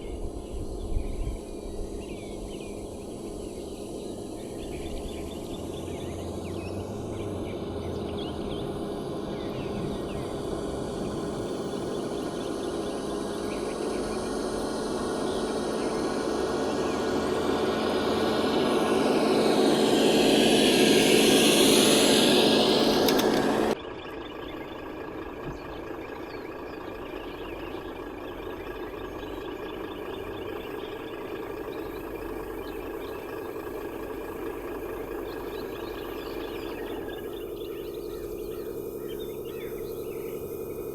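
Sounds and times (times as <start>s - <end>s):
toy vehicle motor whining: 17.2s - 23.8s.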